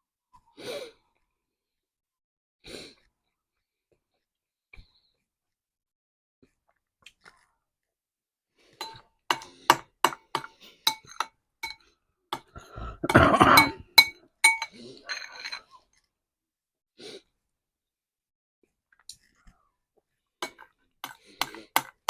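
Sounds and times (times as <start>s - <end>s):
metal utensil clinking on ceramic dish: 8.8s - 9.5s, 10.4s - 11.8s, 13.1s - 15.7s, 20.4s - 21.9s
scraping in dish: 12.6s - 15.7s.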